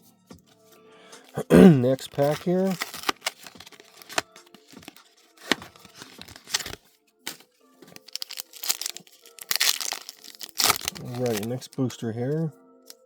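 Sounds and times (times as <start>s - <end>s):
foil wrapper tearing and crinkling: 1.2s - 11.8s.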